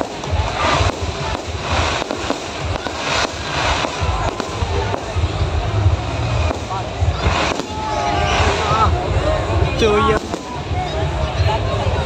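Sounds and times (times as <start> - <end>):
fireworks crackling and banging: 0.0 - 12.0
low rumble: 0.0 - 12.0.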